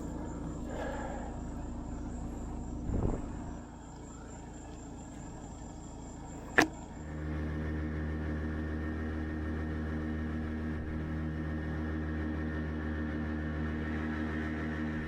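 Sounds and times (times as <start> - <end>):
motor hum: 0.0 - 15.0
sharp click: 6.5 - 6.8.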